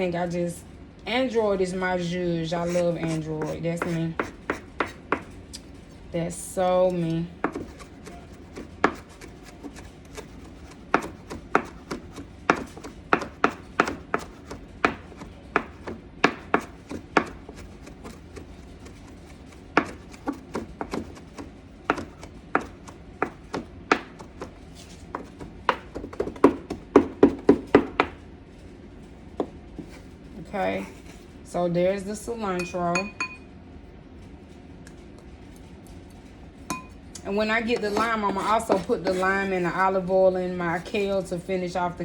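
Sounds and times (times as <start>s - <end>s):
knife chopping herbs: 2.6s - 5.4s, 6.8s - 28.2s, 37.7s - 39.4s.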